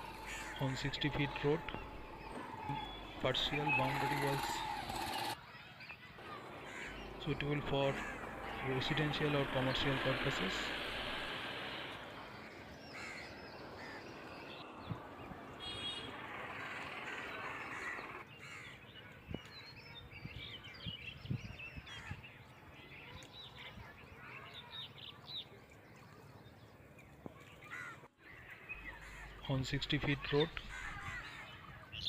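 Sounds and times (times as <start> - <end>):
crows cawing: 0.0 - 5.4, 6.2 - 18.8, 27.6 - 31.6
birds chirping: 0.0 - 32.0
steady rushing noise: 6.2 - 18.2.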